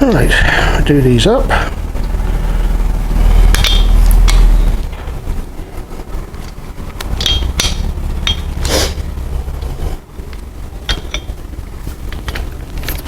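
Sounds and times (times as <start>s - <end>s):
steady low hum: 0.0s - 13.0s
metal hand tools clinking: 7.2s - 9.0s, 10.9s - 11.4s.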